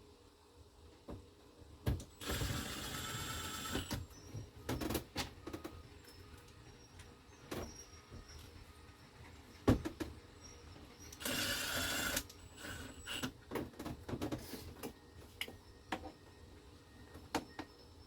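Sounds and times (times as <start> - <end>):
small power tool running: 2.2 - 3.9, 11.2 - 13.3.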